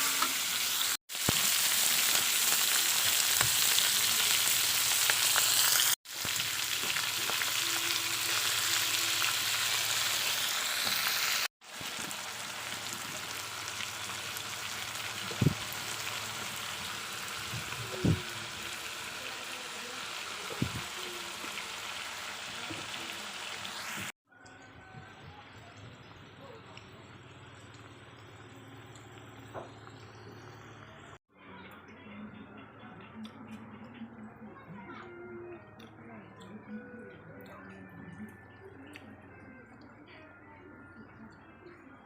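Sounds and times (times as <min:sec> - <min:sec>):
meat sizzling in frying pan: 0:00.0 - 0:24.1.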